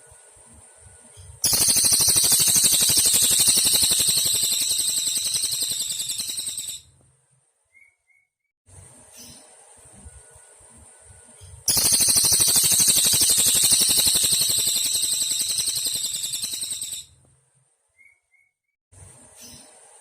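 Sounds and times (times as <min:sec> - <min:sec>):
bird singing fast high trill: 0:01.4 - 0:06.9, 0:11.7 - 0:17.1.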